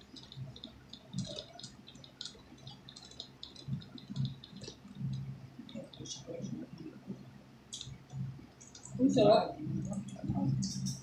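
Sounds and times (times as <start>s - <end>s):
wet chewing and lip-smacking: 0.0s - 6.2s.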